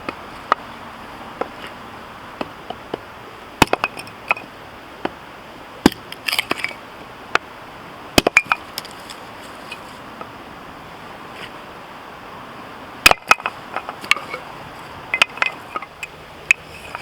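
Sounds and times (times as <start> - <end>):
hatchet chopping firewood: 1.4 - 1.8, 2.4 - 5.2, 5.8 - 7.5, 8.1 - 9.8, 13.0 - 14.4, 15.2 - 17.0.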